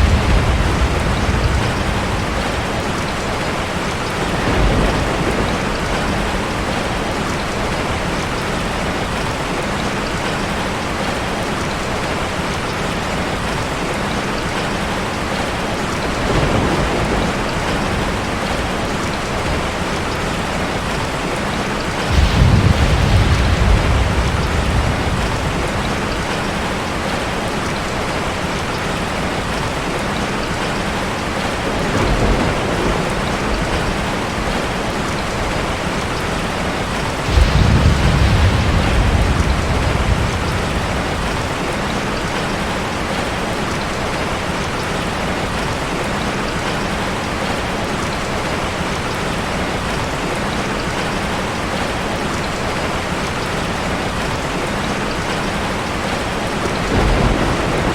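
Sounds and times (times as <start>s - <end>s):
low rumbling swells: 0.0s - 3.4s, 37.3s - 41.8s.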